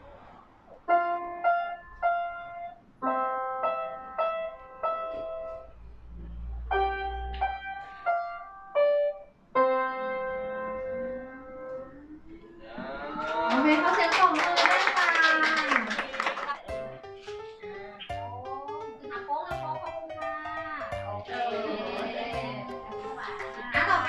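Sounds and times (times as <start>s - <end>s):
child playing piano: 0.9s - 5.8s, 6.6s - 12.0s, 16.5s - 24.0s.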